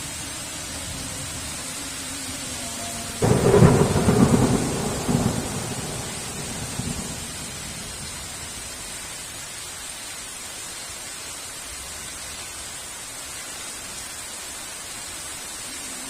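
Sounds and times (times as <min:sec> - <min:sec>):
heavy rain: 0:00.0 - 0:16.0
crackling thunderclap: 0:03.2 - 0:09.0.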